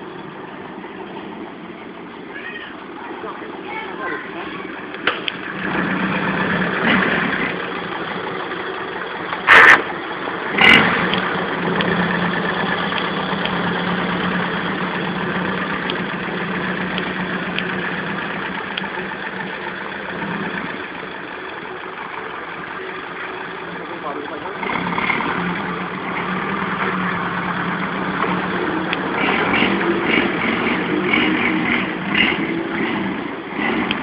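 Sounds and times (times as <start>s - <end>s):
loud engine bangs: 4.9s - 8.4s, 9.3s - 20.8s, 24.0s - 34.0s
motorcycle engine running at low revs: 24.6s - 34.0s.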